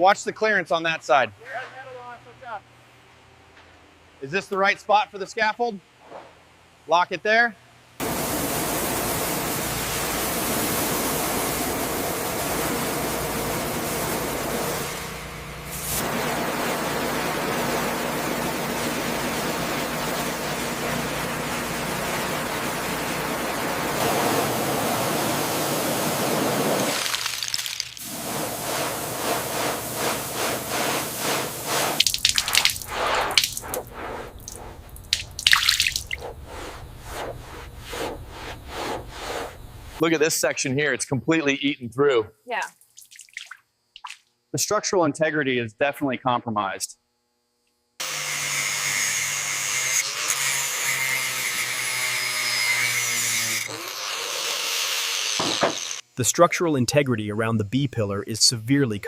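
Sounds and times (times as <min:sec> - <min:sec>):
water dripping and splashing: 0:26.7 - 0:28.1, 0:31.7 - 0:36.4, 0:42.8 - 0:44.3
small electric motor humming: 0:48.0 - 0:56.0.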